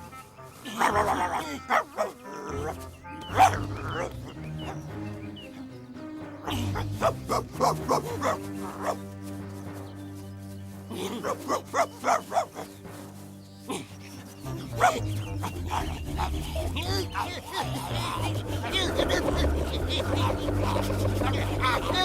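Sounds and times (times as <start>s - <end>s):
background music: 0.0s - 22.0s
dog barking: 0.6s - 4.8s, 6.5s - 9.1s, 10.9s - 12.8s, 14.5s - 22.0s.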